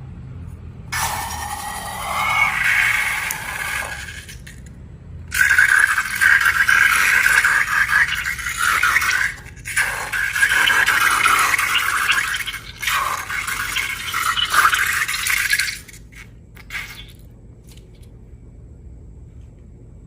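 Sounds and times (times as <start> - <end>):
slime scraping and rasping: 5.3 - 17.2.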